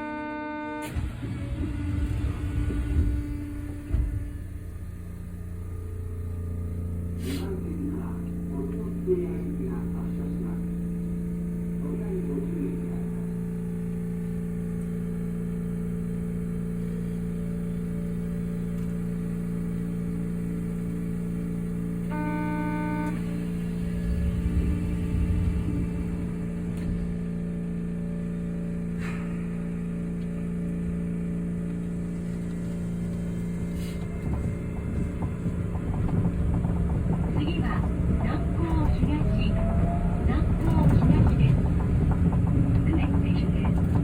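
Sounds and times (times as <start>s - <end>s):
train drive hum: 0.0s - 44.0s
low rolling rumble: 1.2s - 28.5s, 29.4s - 44.0s
faint pulsing tone: 2.6s - 28.6s.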